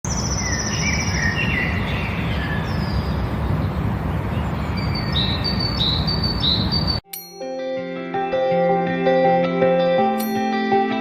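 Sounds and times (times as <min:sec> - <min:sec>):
birds singing: 0:00.1 - 0:07.0
outdoor background rush: 0:00.1 - 0:07.0.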